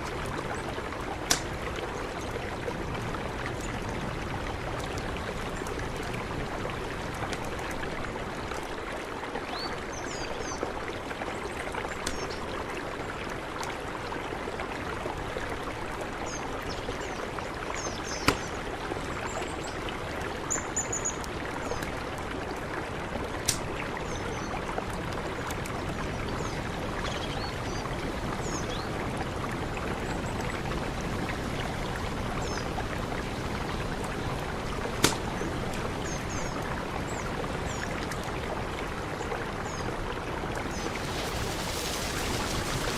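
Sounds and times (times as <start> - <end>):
mountain river rushing: 0.0 - 42.9
small birds chirping: 17.8 - 18.6.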